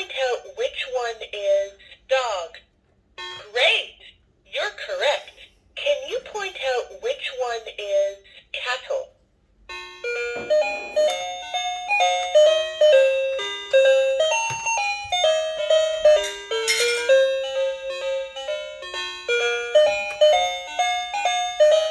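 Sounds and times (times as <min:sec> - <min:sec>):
toy piano melody: 0:09.7 - 0:21.9.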